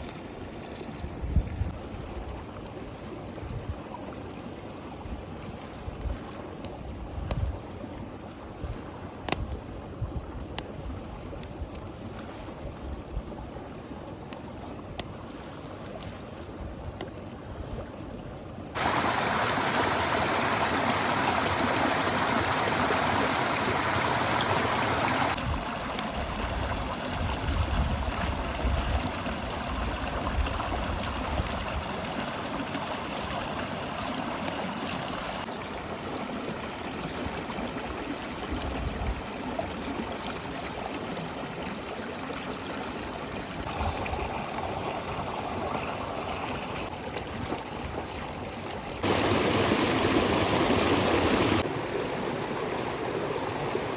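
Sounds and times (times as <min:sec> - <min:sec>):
river water rushing: 0:18.8 - 0:35.5, 0:43.6 - 0:46.9, 0:49.0 - 0:53.9.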